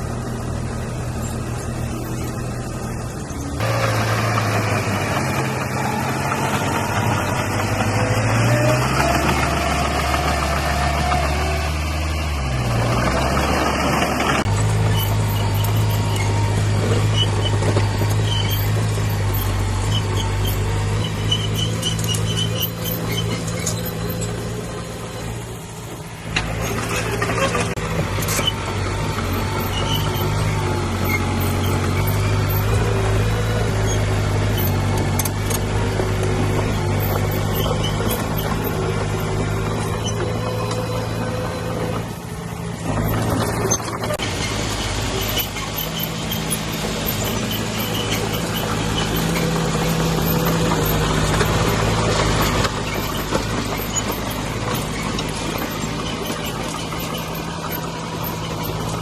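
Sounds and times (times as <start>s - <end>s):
heavy diesel engine running: 0.0s - 59.0s
short high-pitched squeaks: 13.5s - 25.4s, 26.3s - 59.0s.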